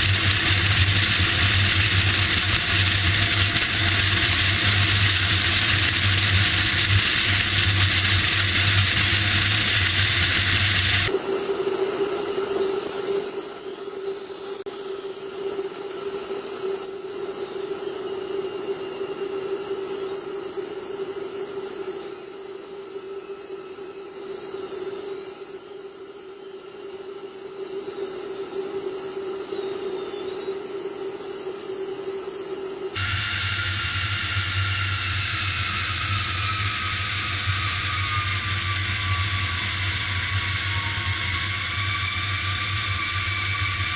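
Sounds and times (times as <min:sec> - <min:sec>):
jet engine whine: 0:00.0 - 0:43.9
jet engine hum: 0:11.0 - 0:33.1.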